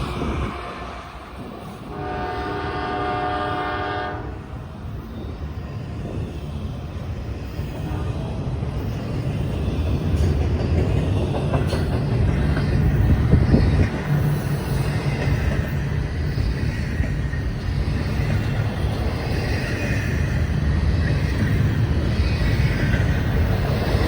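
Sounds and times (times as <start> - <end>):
train rumbling: 0.0 - 24.0
locomotive air horn blast: 1.9 - 4.4.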